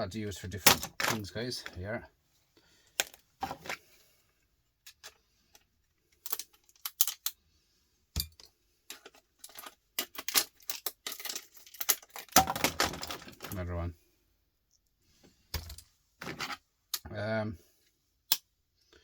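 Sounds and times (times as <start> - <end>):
clicks of small parts and tools: 2.9 - 3.8, 4.8 - 7.4, 8.2 - 13.6, 15.5 - 17.1, 18.3 - 18.5.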